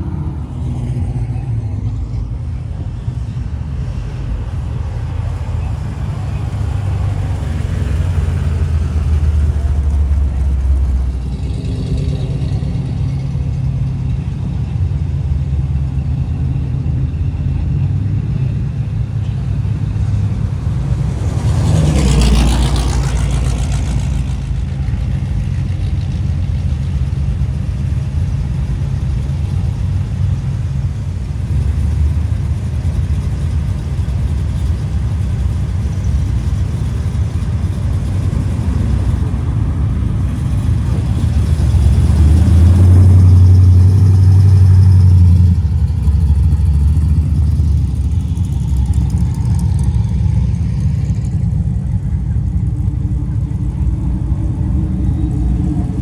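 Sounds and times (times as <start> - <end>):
cars driving slowly past: 0.0 - 56.0.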